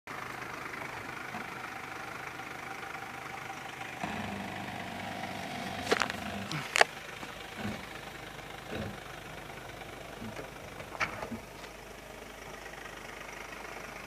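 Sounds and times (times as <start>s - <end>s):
diesel van engine running: 0.1s - 14.0s.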